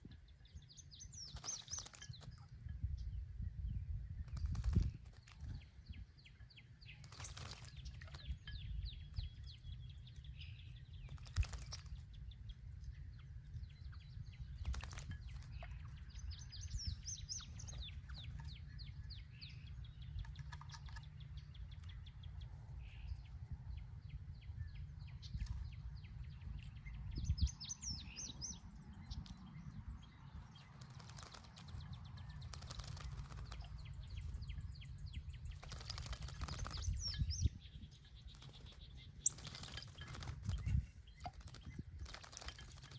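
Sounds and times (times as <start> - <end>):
songbirds chirping and twittering: 0.0 - 42.9
splashes at birdbath: 7.0 - 8.4, 11.0 - 12.1, 14.6 - 16.0, 30.6 - 34.0, 35.5 - 37.2, 38.3 - 42.9.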